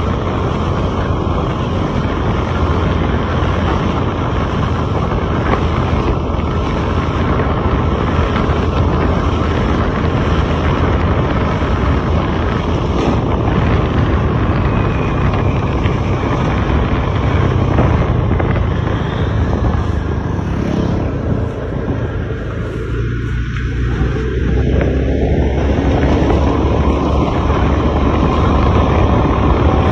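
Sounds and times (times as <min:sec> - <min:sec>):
road and wind noise: 0:00.0 - 0:29.9
truck engine running: 0:00.0 - 0:29.9.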